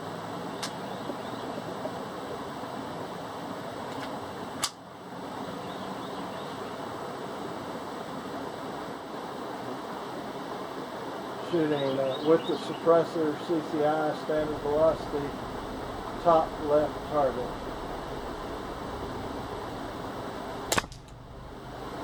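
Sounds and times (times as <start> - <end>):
steady background hiss: 0.0 - 22.0
clicks: 20.7 - 22.0.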